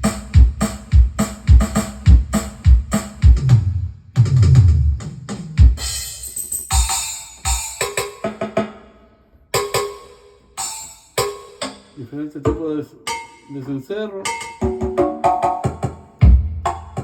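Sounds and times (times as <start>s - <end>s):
bass drum and snare hits: 0.0s - 6.0s, 14.7s - 17.0s
pitched ringing percussion hits: 9.6s - 12.0s, 13.1s - 15.6s.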